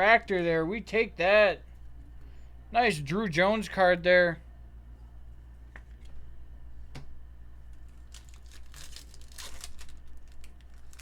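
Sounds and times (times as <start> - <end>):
foil wrapper crinkling and tearing: 7.7 - 11.0.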